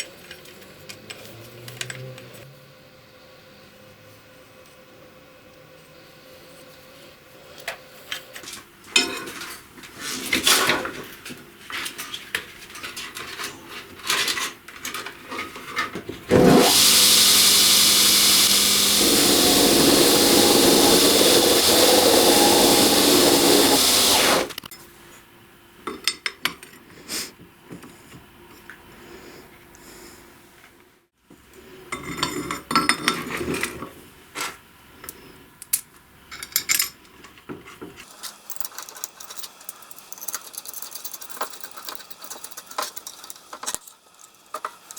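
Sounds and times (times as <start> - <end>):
power tool running: 16.3 - 24.6
metal parts and tools clinking: 38.1 - 44.9.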